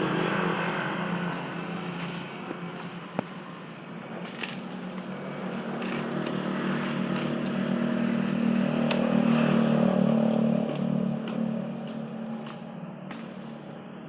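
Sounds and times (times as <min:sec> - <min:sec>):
motor vehicle engine running: 0:00.0 - 0:14.0
crackling ticks: 0:00.6 - 0:03.3, 0:08.2 - 0:13.6.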